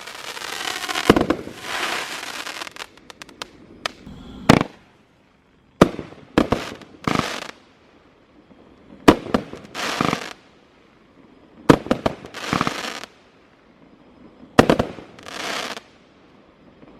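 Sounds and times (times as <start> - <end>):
firework launch cracks: 0.0 - 4.9
firework crackling bursts: 0.0 - 5.0, 5.8 - 7.8, 9.1 - 10.5, 11.7 - 13.3.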